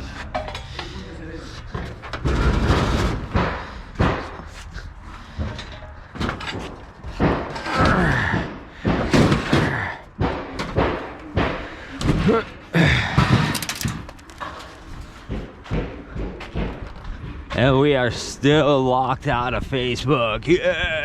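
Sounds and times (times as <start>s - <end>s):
scrap metal thudding and banging: 1.8s - 4.5s, 12.9s - 17.0s
metal scraping: 13.5s - 15.3s.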